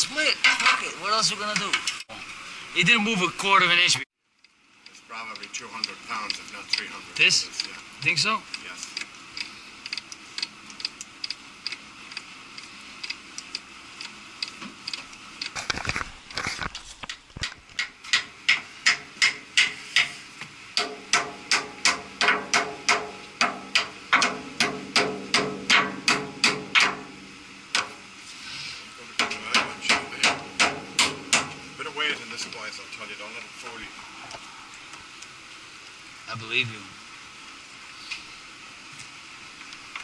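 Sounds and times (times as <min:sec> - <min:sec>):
sharp metallic strikes: 0:20.8 - 0:28.0, 0:29.2 - 0:32.0.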